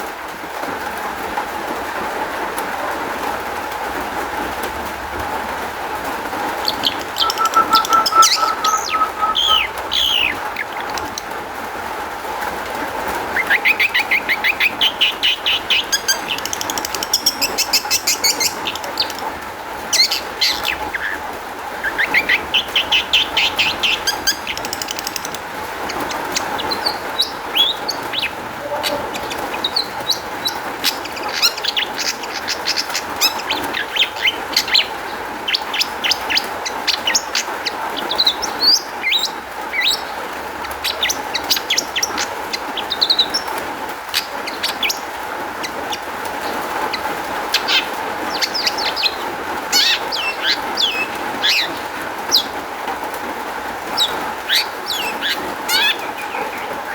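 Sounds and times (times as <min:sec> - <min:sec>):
bird singing chirps and trills: 0:06.6 - 0:11.1, 0:22.1 - 0:40.0.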